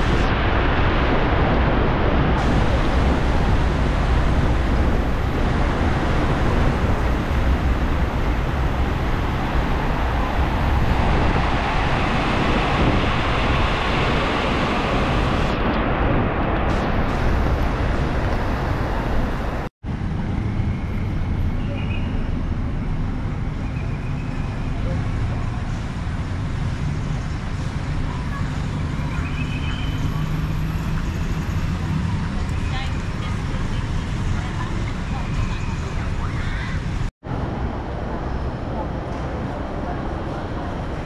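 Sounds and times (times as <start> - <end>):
tyres hissing on wet road: 0.0 - 15.6, 16.7 - 19.7
heavy rain pouring: 0.0 - 19.7
wind on microphone: 0.0 - 21.2
engine rumble: 0.0 - 41.0.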